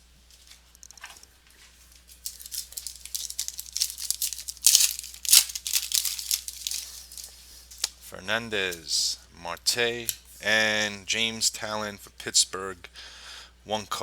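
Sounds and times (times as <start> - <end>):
foil wrapper crinkling: 0.4 - 8.0.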